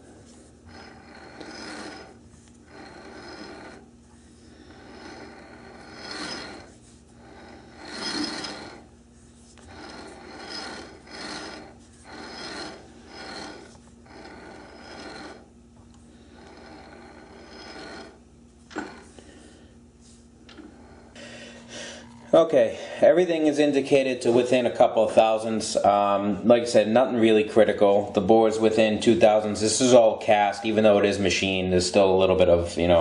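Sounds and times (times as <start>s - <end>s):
lathe chuck ratcheting by hand: 0.7s - 3.9s, 4.7s - 6.7s, 7.3s - 8.9s, 9.7s - 15.5s, 16.3s - 19.1s.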